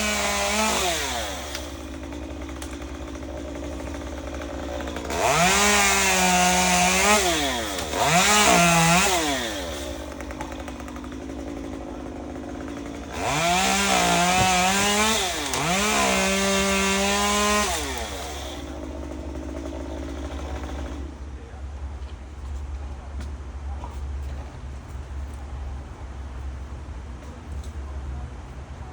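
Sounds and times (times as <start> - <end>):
chainsaw revving and idling: 0.0 - 21.3.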